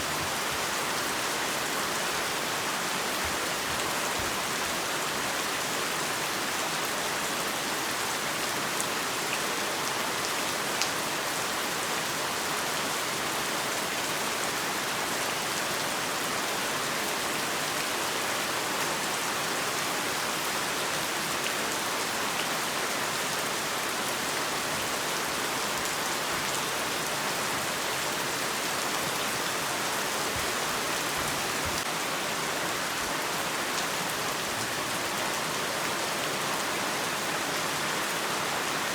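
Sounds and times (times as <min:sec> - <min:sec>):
heavy rain falling: 0:17.4 - 0:38.9.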